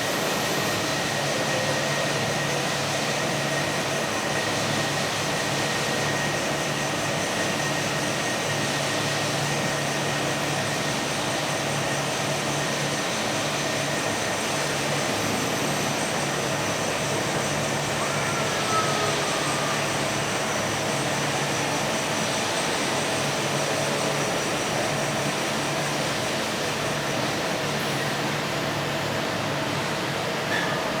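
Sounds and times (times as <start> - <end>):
machinery hum: 0.0 - 31.0.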